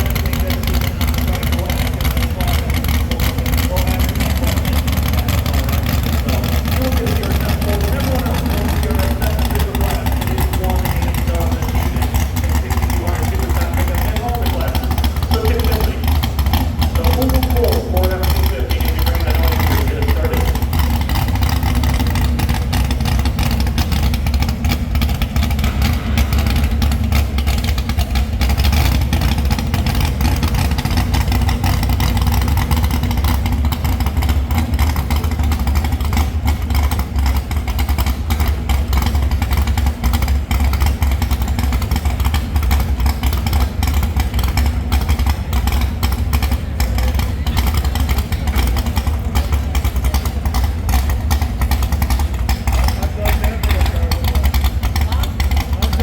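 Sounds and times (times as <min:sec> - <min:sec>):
engine deep rumble with rattle: 0:00.0 - 0:56.0.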